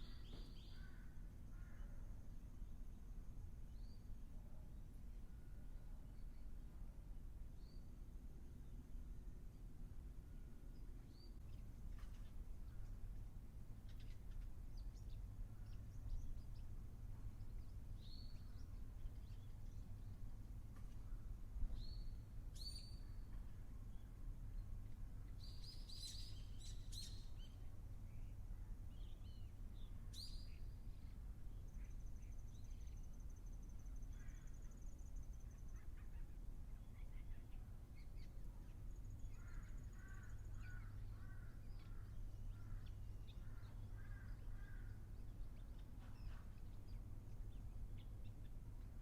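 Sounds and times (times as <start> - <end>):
low steady rumble: 0.0 - 49.0
wild birds calling: 38.7 - 49.0.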